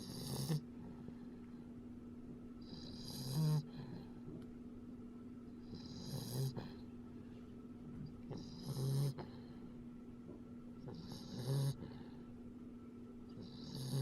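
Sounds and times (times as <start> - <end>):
puppy snoring: 0.0 - 1.0, 2.6 - 4.2, 5.6 - 6.8, 8.2 - 9.6, 10.8 - 12.2, 13.4 - 14.0
steady low hum: 0.0 - 14.0.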